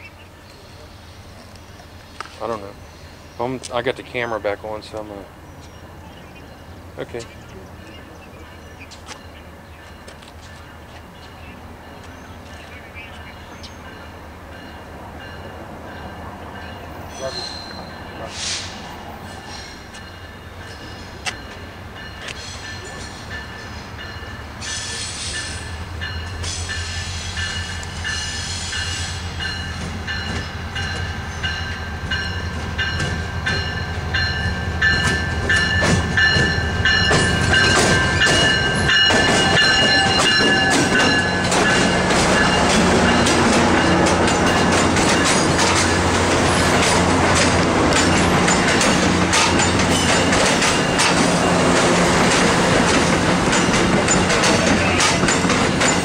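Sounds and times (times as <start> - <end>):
diesel locomotive rumble: 0.0 - 56.0
high wheel squeal: 17.1 - 18.8
wheels clacking over rail joints: 29.4 - 56.0.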